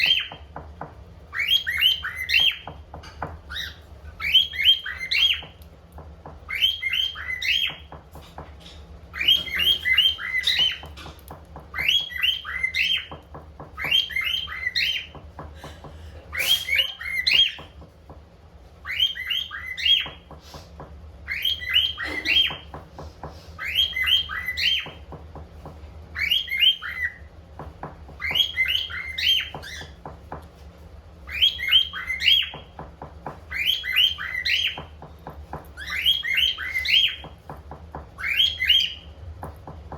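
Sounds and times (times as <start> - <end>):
cockatiel chirping: 1.3 - 2.8, 3.4 - 5.6, 6.5 - 15.2, 16.3 - 17.7, 18.8 - 20.3, 21.3 - 22.8, 23.6 - 25.0, 26.2 - 27.3, 28.1 - 30.1, 31.3 - 32.8, 33.5 - 37.4, 38.1 - 39.1.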